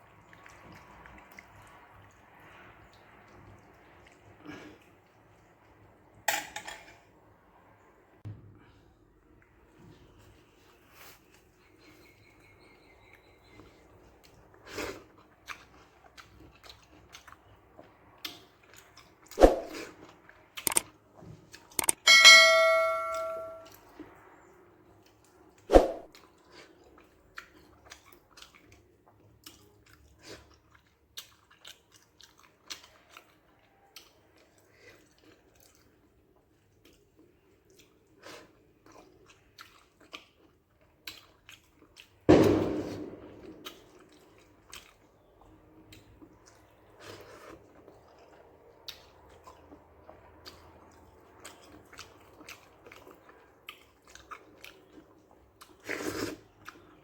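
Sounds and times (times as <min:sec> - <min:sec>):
chewing and mouth smacking: 0:00.0 - 0:05.4, 0:13.1 - 0:22.0, 0:25.0 - 0:42.3, 0:43.4 - 0:57.0.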